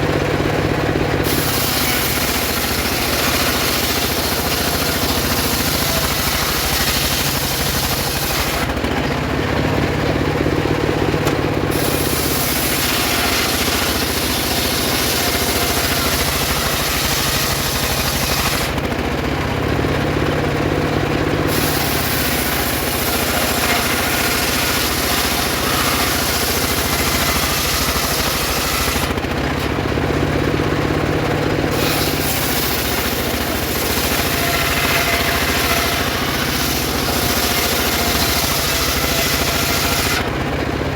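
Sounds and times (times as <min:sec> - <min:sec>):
circular saw ripping wood: 0:00.0 - 0:20.2, 0:20.8 - 0:40.9
low saw drive noise: 0:00.0 - 0:40.9.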